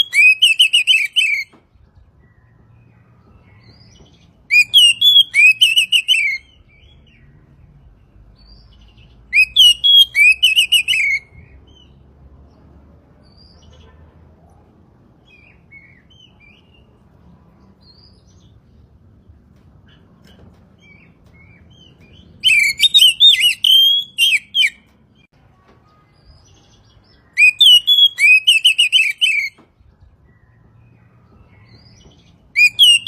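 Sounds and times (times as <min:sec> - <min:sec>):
bird singing whistled notes: 0:00.0 - 0:01.6, 0:03.6 - 0:07.2, 0:08.4 - 0:11.9, 0:20.8 - 0:25.3, 0:26.4 - 0:29.6, 0:31.6 - 0:33.0.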